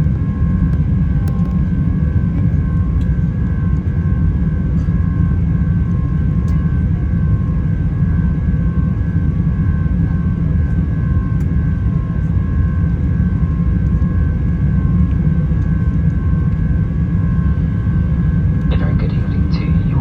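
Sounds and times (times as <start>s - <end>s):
jet cabin rumble: 0.0s - 20.0s
steady whining tones: 18.3s - 20.0s.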